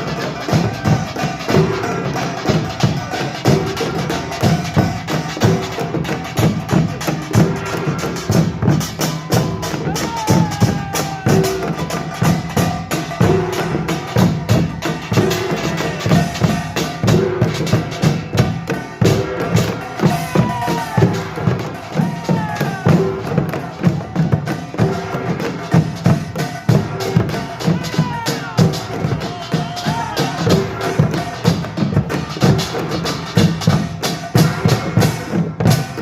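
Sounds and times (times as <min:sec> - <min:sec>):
percussion band playing: 0:00.0 - 0:36.0.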